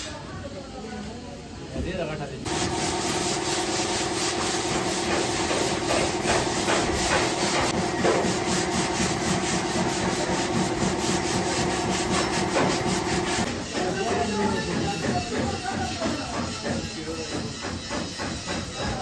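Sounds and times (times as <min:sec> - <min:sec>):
power tool motor running: 0:02.5 - 0:14.4.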